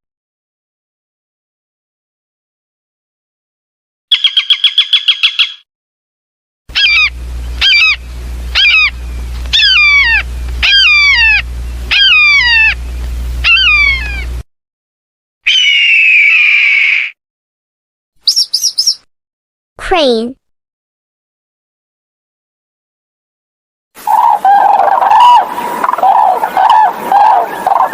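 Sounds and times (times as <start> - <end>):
hawk calls: 6.7 - 12.8, 13.4 - 14.4, 18.3 - 19.0, 24.0 - 27.9.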